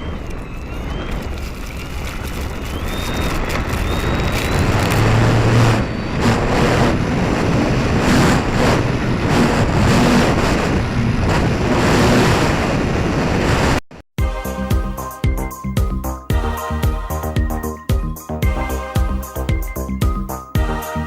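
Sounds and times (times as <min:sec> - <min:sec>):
electric motor and propeller: 0:00.0 - 0:13.7
wind rushing over microphone: 0:00.0 - 0:13.9.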